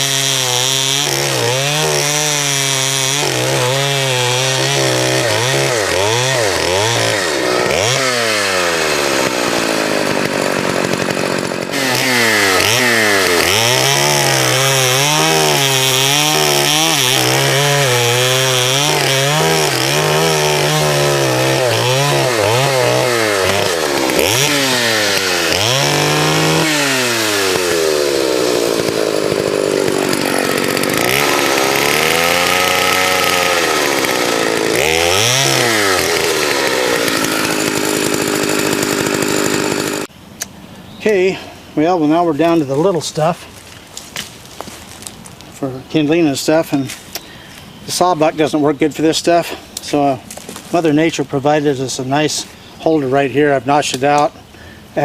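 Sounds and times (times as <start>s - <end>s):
chainsaw cutting wood: 0.0s - 40.1s, 49.0s - 52.5s.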